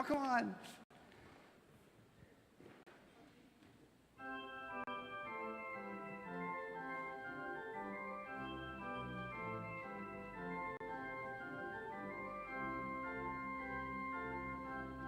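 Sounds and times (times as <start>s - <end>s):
organ playing slow chords: 4.2s - 15.0s.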